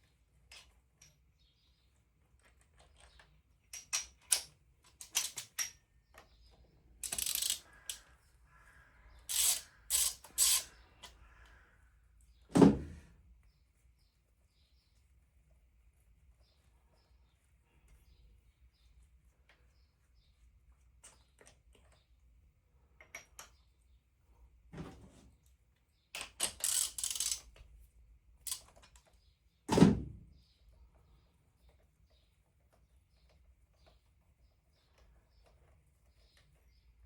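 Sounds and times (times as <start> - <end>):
metal tools clicking and scraping: 7.0 - 8.0, 9.3 - 10.7, 26.4 - 27.6.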